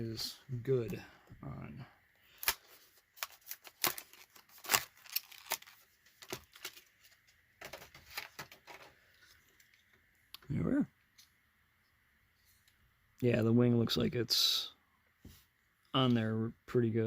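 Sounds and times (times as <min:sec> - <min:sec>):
plastic packaging being cut open: 0:02.4 - 0:06.8.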